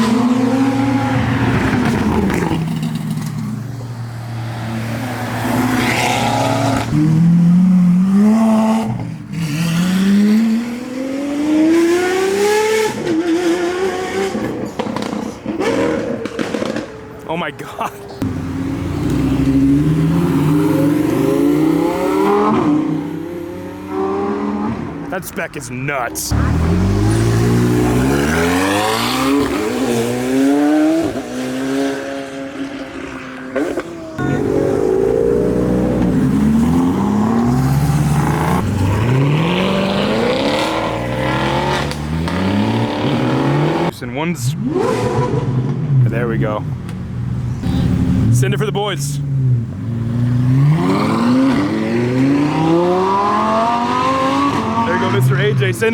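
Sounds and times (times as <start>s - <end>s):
another car engine: 0.0s - 25.2s, 26.2s - 43.9s
car engine accelerating hard: 26.3s - 43.9s, 49.3s - 55.9s.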